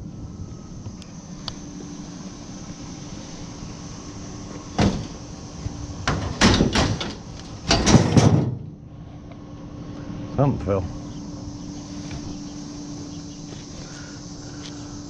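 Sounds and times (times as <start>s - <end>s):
scrap metal clanking: 6.0s - 8.8s.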